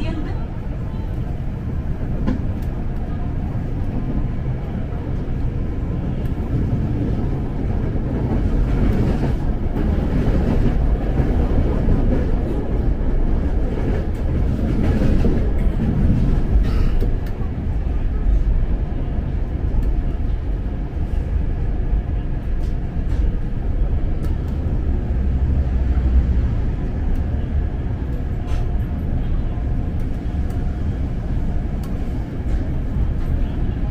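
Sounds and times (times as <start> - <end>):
train rumbling from inside: 0.0 - 33.9.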